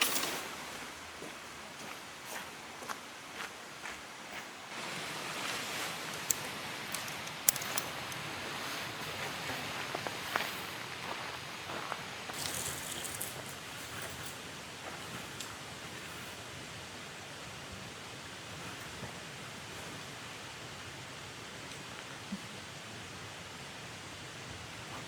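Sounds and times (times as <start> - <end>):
rustling handling noise: 4.7 - 16.4.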